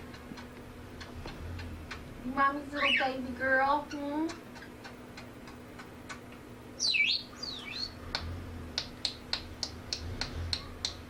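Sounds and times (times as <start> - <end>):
bird sweeping chirps: 2.7 - 3.2, 6.8 - 8.0
sharp ticks: 8.1 - 11.0.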